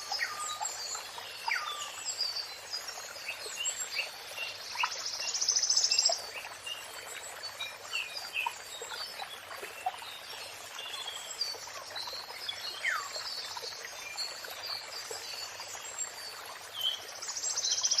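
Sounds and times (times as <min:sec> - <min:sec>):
songbirds chirping and whistling: 0:00.0 - 0:10.2
running water hiss: 0:00.0 - 0:18.0.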